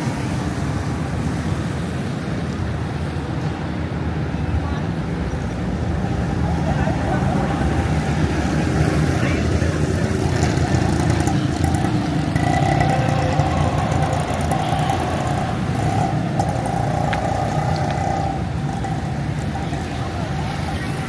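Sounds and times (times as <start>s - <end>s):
vehicle engines rumbling: 0.0s - 21.0s.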